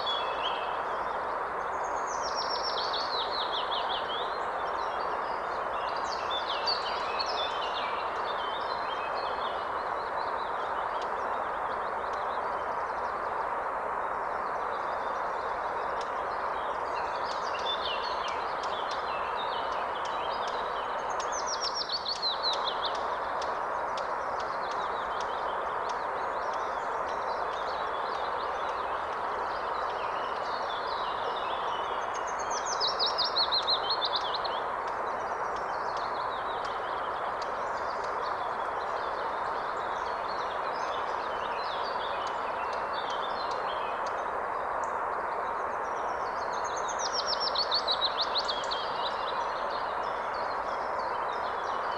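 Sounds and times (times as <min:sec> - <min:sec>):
river water running: 0:00.0 - 0:51.9
songbirds singing: 0:00.0 - 0:51.9.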